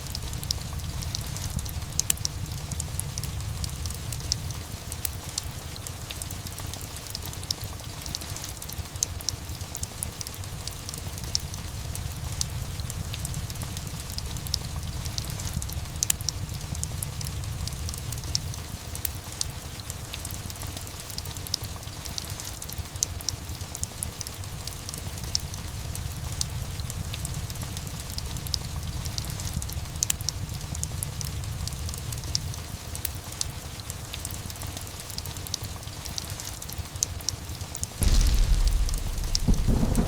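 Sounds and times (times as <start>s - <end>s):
steady rain: 0.0s - 40.0s
wood fire crackling: 0.0s - 40.0s
low rumble: 38.0s - 40.0s.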